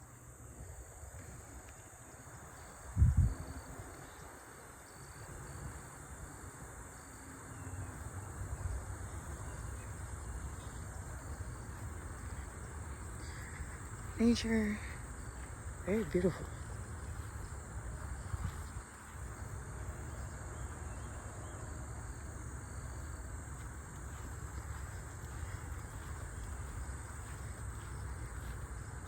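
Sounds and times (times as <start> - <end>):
insects droning: 0.0 - 29.0
wind rumble on microphone: 0.4 - 29.0.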